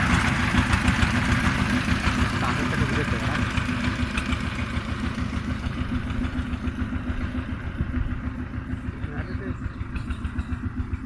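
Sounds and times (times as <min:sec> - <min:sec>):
tiller engine running: 0:00.0 - 0:11.0.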